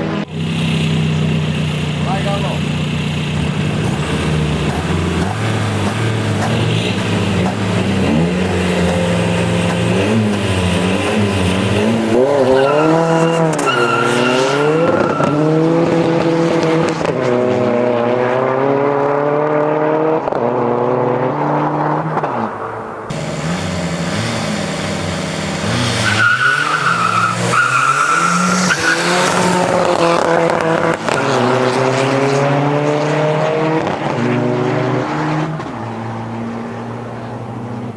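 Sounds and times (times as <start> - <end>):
diesel engine accelerating hard: 0.0 - 22.3, 22.9 - 37.9.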